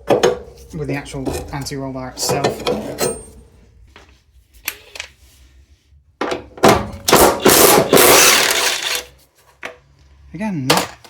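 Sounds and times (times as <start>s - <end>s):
impact wrench rattling: 6.7s - 9.1s.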